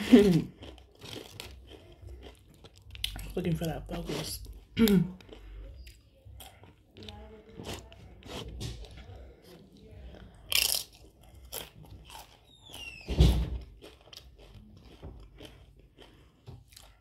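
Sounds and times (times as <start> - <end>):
chip crunching while chewed: 0.0 - 9.0, 10.2 - 17.0.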